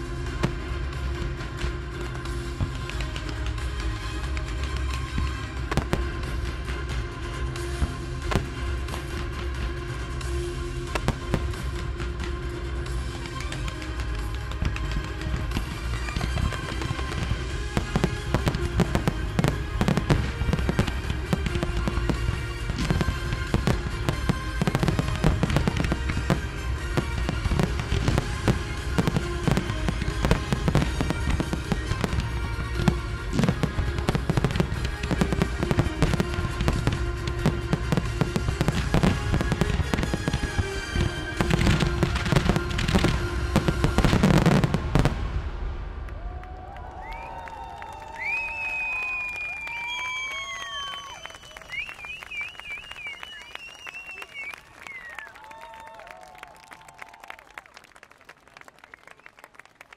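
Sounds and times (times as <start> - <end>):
music soundtrack: 0.0 - 47.4
fireworks bursting: 0.0 - 56.2.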